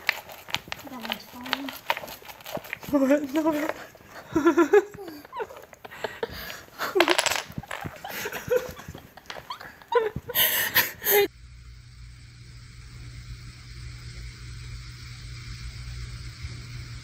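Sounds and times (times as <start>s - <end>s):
wooden blocks clattering on floor: 0.0s - 10.6s
people laughing and exclaiming: 3.4s - 11.3s.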